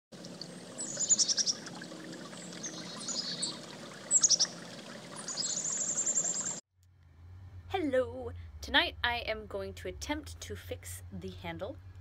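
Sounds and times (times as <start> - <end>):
small birds chirping: 0.8 - 6.6.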